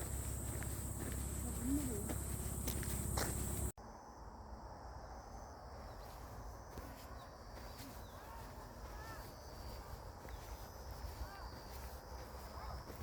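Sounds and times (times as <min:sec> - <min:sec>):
high insect-like tone: 0:00.0 - 0:03.7.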